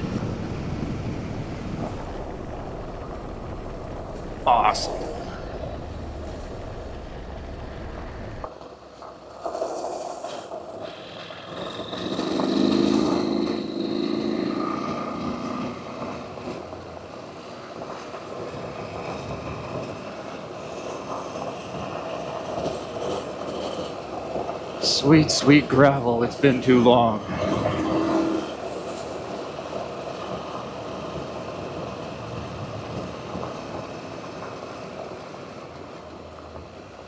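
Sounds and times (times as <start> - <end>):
motorcycle engine running: 0.0 - 8.5
wind noise: 0.0 - 8.5.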